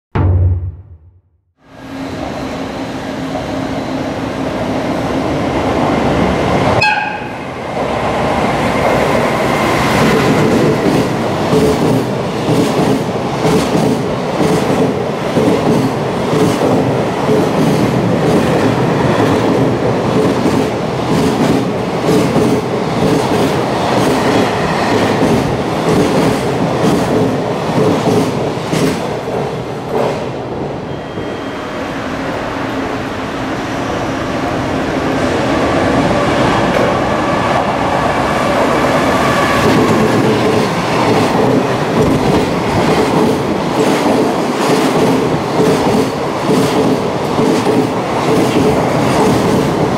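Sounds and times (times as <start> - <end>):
train horn blast: 6.8 - 7.4.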